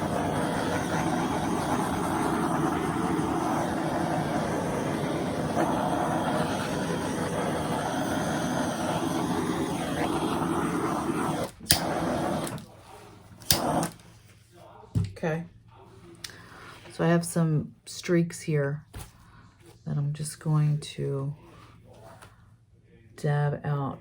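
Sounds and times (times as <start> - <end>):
hair dryer running: 0.0 - 12.7, 13.4 - 14.0.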